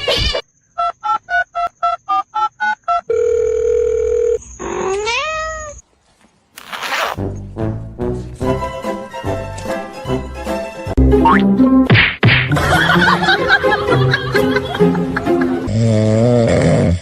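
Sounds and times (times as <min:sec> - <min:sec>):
cat meowing: 0:04.8 - 0:05.8.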